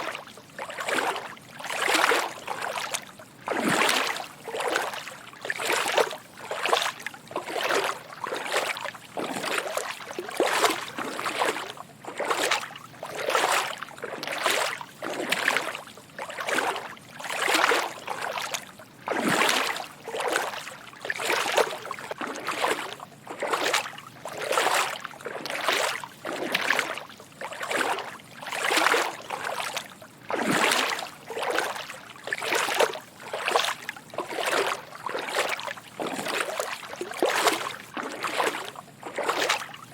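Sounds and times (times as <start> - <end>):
footsteps wading through water: 0.0 - 39.9.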